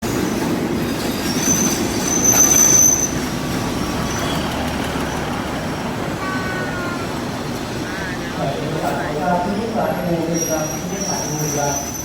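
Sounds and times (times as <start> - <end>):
train rumbling on rails: 0.0 - 12.0
high-pitched wheel squeal: 1.0 - 12.0.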